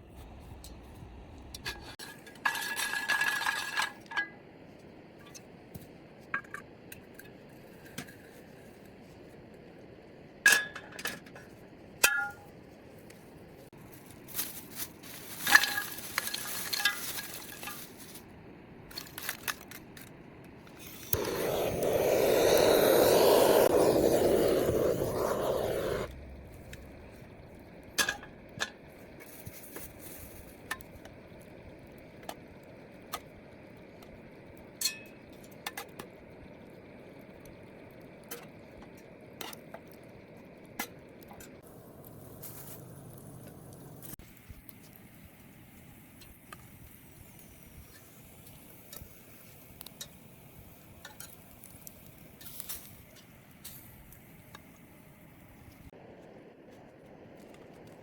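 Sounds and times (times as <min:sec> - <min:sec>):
clinks of objects handled: 0:14.4 - 0:18.2.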